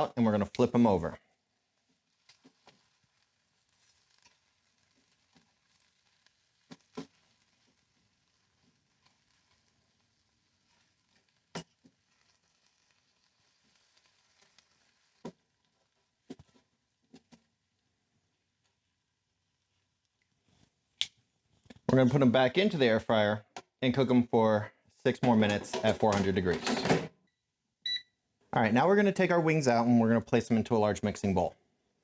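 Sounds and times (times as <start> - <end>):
sharp clicks and knocks: 25.2 - 27.1.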